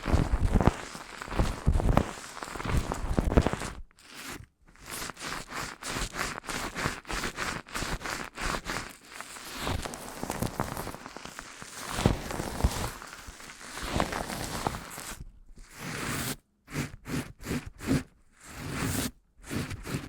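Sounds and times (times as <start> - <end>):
dense crackling and rustling: 0.0 - 3.8, 8.7 - 15.2.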